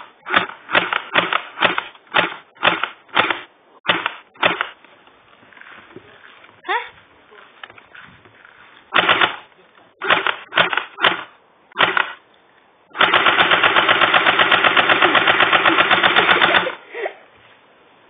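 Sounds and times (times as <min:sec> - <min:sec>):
bb gun firing bursts: 0:00.0 - 0:04.8, 0:08.9 - 0:12.2, 0:12.9 - 0:16.8.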